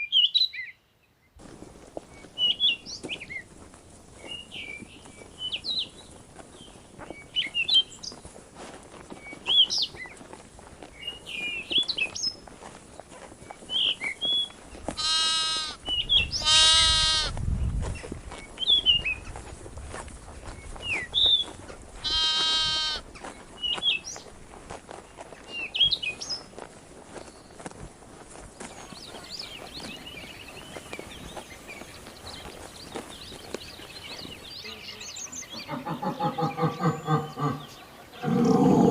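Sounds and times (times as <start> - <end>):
small birds chirping: 0.0 - 38.9
sheep or goat bleating: 15.0 - 15.8, 16.4 - 17.4, 22.0 - 23.1.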